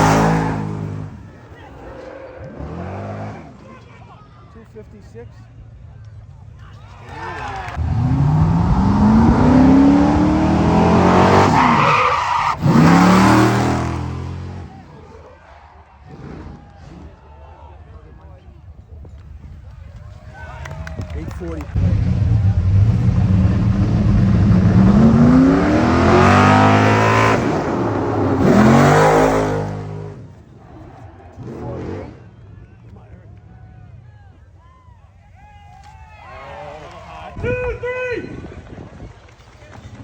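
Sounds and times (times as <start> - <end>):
vehicle engine accelerating hard: 0.0 - 3.8, 7.6 - 15.2, 21.5 - 32.5.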